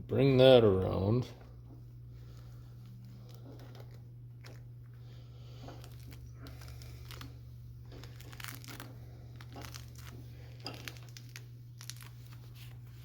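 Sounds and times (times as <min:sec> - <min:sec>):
steady low hum: 0:00.0 - 0:13.0
steel cable scraping and clicking: 0:02.8 - 0:04.7, 0:05.6 - 0:12.2.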